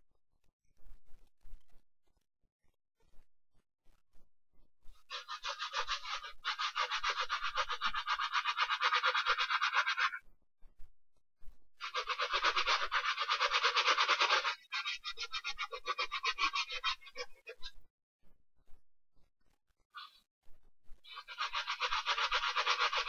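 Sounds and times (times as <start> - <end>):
brush scrubbing a sneaker: 5.1 - 10.1, 11.8 - 14.7, 21.1 - 23.0.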